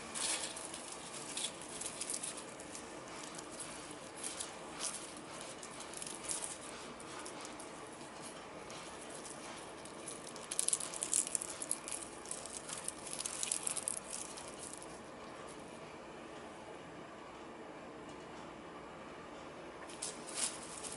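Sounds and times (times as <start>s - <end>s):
dry crackling and rustling: 0.0s - 15.4s, 19.9s - 20.9s.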